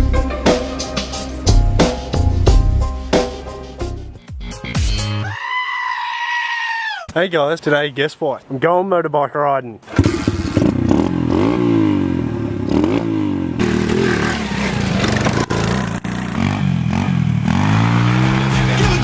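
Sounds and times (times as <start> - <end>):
pit bike engine revving: 9.9 - 19.0.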